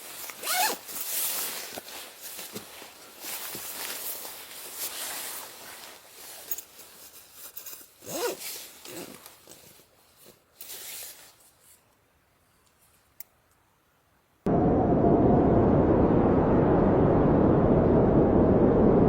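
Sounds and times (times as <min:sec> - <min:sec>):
rustling and scraping handling: 0:00.0 - 0:13.2.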